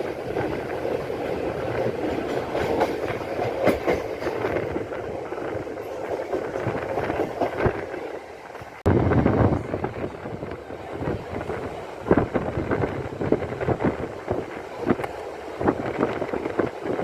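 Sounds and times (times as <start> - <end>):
rails clicking and clattering: 0.0 - 8.8
train rumbling on rails: 0.0 - 17.0
wind buffeting microphone: 0.0 - 17.0.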